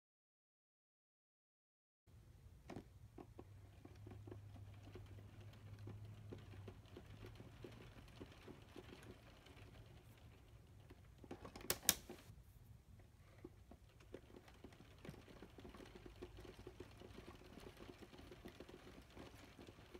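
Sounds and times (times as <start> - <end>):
faint low hum: 2.1 - 19.9
plastic parts clicking: 10.8 - 12.3
sharp clicks: 11.3 - 12.3.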